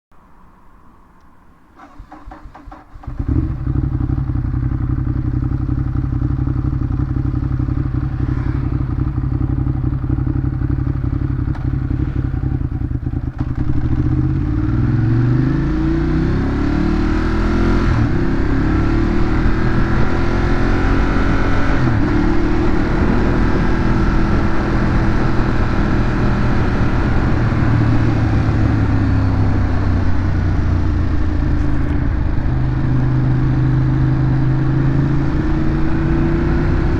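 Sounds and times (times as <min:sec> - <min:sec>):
motorcycle engine idling and revving: 0:01.8 - 0:36.9.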